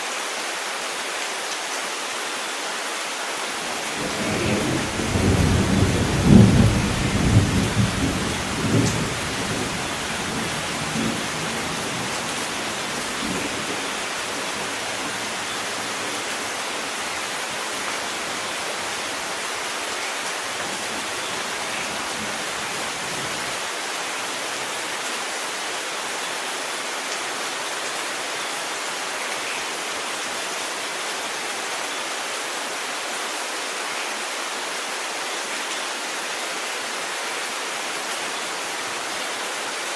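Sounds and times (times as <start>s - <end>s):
steady rain hiss: 0.0s - 39.9s
thunder rumbling: 3.9s - 16.3s.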